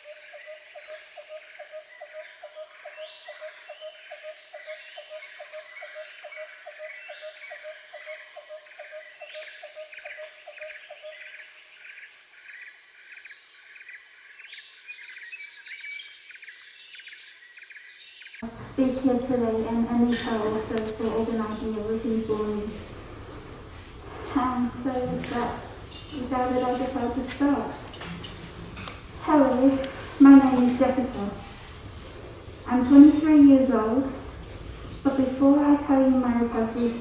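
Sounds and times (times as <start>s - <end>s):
bird chirps: 0.0s - 18.4s.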